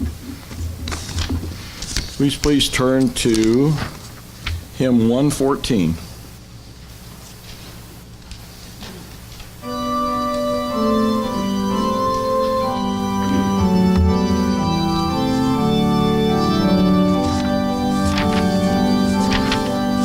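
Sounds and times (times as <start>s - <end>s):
organ playing hymn: 9.6s - 20.0s.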